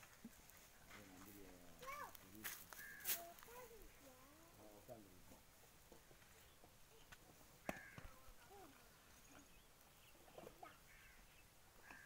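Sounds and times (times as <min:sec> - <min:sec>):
faint bird chirps: 0:06.3 - 0:12.0.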